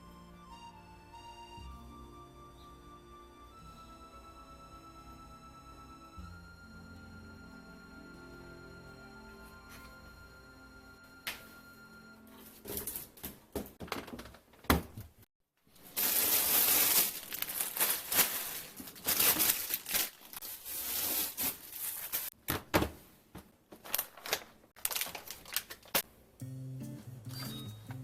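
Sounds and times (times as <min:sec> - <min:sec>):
plastic packaging crinkling: 0:15.7 - 0:22.4, 0:23.8 - 0:26.0.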